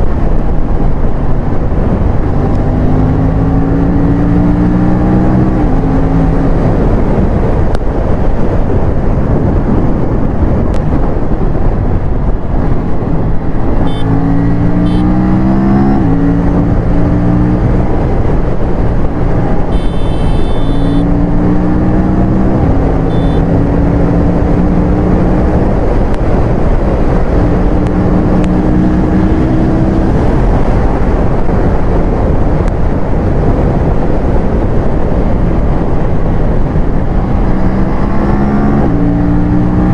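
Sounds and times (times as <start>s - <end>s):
wind and road noise: 0.0s - 39.9s
motorcycle engine accelerating: 1.4s - 8.1s, 10.7s - 39.9s
short high-pitched tone: 19.7s - 21.0s, 23.0s - 23.4s.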